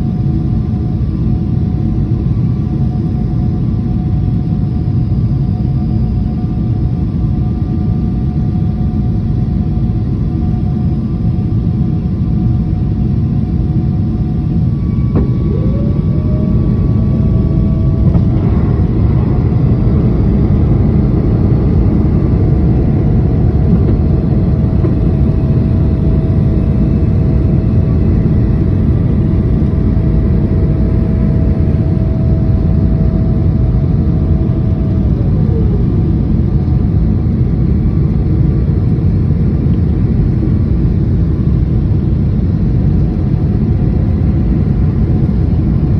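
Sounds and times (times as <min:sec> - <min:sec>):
airliner cabin rumble: 0:00.0 - 0:45.9
rising whine: 0:12.9 - 0:39.0.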